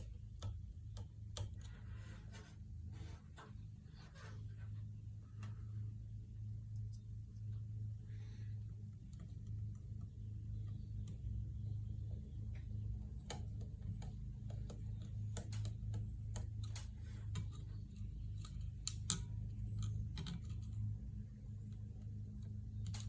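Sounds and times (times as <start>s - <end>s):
irregular clicks and taps: 0.0s - 2.6s, 8.7s - 23.0s
steady low hum: 0.0s - 23.0s.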